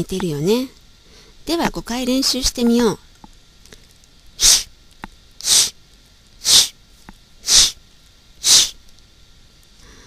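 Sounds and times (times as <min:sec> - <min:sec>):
person making sh sound: 0:04.4 - 0:04.7, 0:05.4 - 0:05.8, 0:06.4 - 0:06.8, 0:07.4 - 0:07.8, 0:08.4 - 0:08.8.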